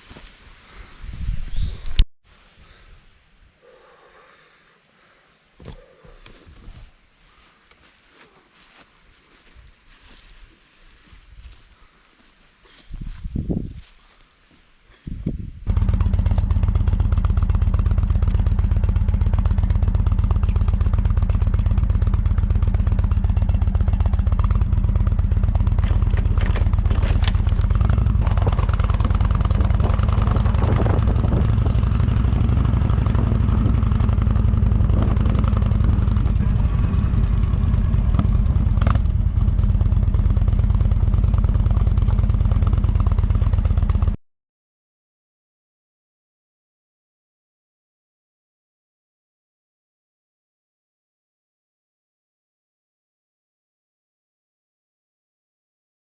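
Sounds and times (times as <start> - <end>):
motorcycle engine running: 15.7 - 44.2.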